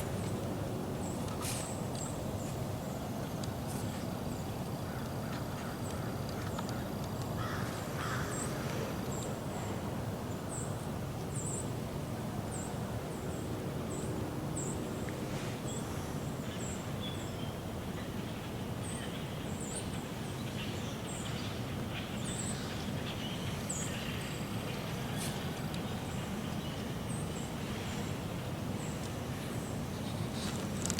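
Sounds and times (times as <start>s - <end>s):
crow cawing: 7.4s - 8.6s.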